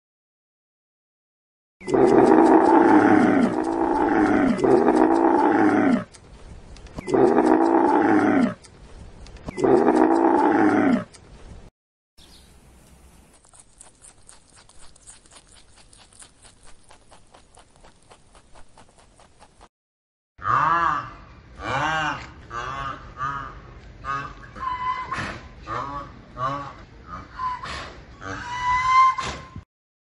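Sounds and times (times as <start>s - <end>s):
camel groaning bellow: 1.8s - 6.1s, 7.0s - 8.6s, 9.6s - 11.1s.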